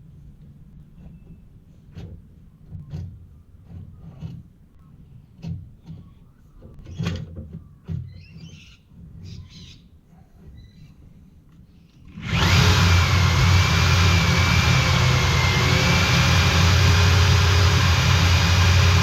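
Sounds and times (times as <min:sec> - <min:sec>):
high rasping noise: 0:12.2 - 0:19.0.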